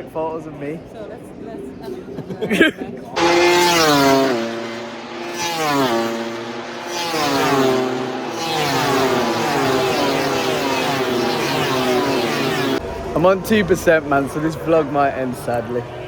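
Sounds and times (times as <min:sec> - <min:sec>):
racing motorcycle engines revving: 0:03.2 - 0:13.8.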